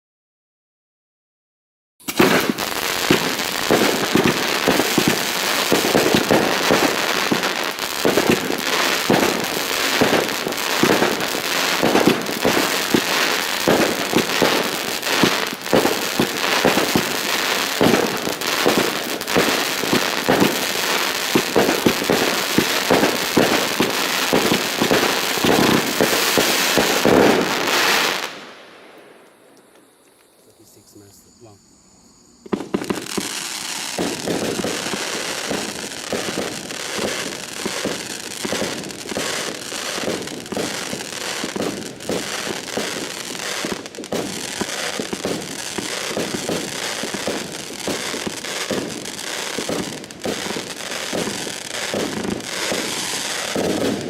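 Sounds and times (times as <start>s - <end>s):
firework launches and crackling: 2.0s - 31.1s, 32.4s - 54.0s.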